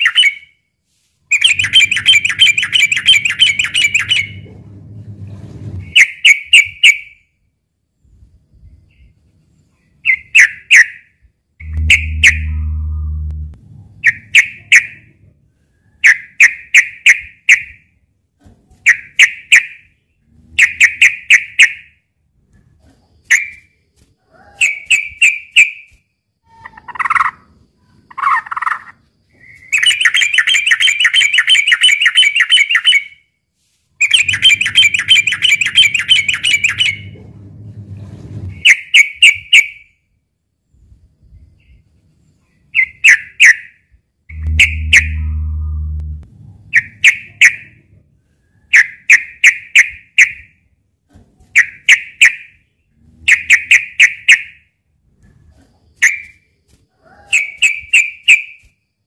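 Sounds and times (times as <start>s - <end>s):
low hum: 4.3s - 5.9s, 11.6s - 14.3s, 34.2s - 38.6s, 44.3s - 48.2s
bird calling bubbly phrases: 11.6s - 14.8s, 44.3s - 46.1s
bird chattering: 44.3s - 45.9s.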